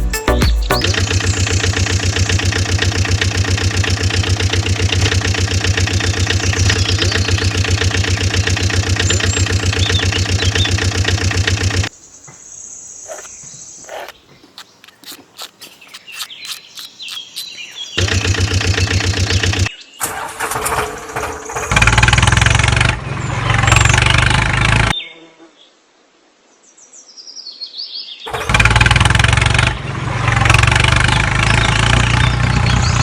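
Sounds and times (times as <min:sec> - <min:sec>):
birds chirping: 0:00.0 - 0:20.0
small engine chugging: 0:00.7 - 0:11.9, 0:13.0 - 0:24.9, 0:28.3 - 0:33.0
scattered clicks: 0:13.9 - 0:19.1.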